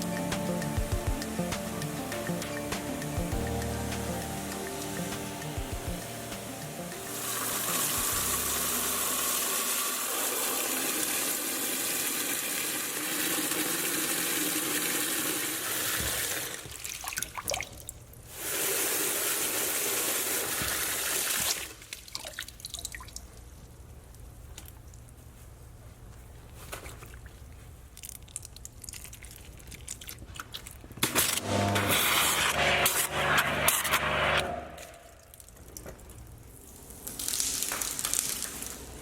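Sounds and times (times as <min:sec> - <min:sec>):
water spraying hiss: 0:00.0 - 0:11.9, 0:18.3 - 0:21.8, 0:36.6 - 0:39.0
water dripping: 0:21.5 - 0:25.0.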